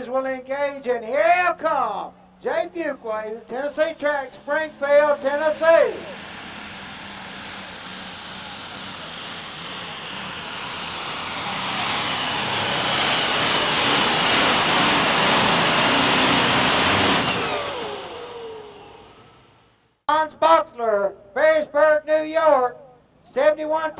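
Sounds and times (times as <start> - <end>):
tractor engine under full load: 3.6 - 19.8
high turbo whistle: 3.8 - 19.7.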